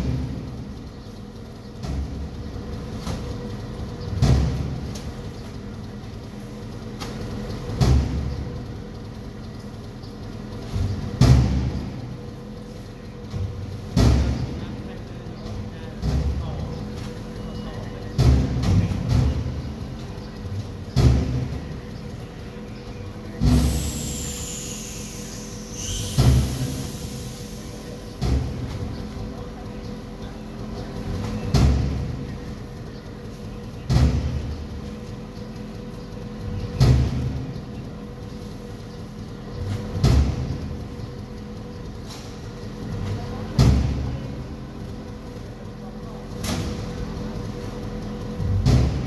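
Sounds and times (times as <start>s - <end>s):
engine hum: 0.0s - 49.0s
high hiss with falling whistle: 23.7s - 27.7s.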